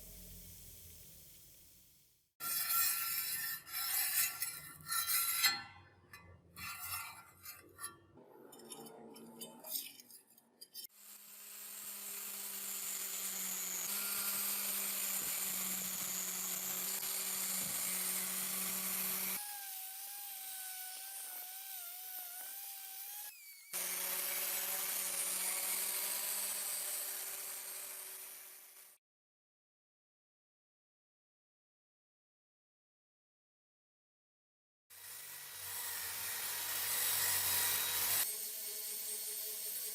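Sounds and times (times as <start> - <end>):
power tool grinding metal: 2.4 - 29.0, 35.0 - 39.9.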